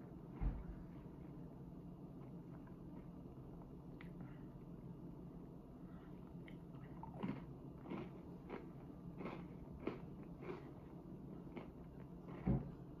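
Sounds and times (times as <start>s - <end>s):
person chewing crunchy bar: 6.5s - 12.6s.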